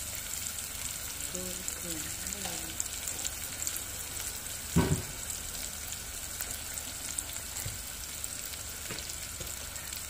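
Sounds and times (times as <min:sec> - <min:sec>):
onions frying in hot oil: 0:00.0 - 0:10.0
dull knock: 0:04.8 - 0:05.1.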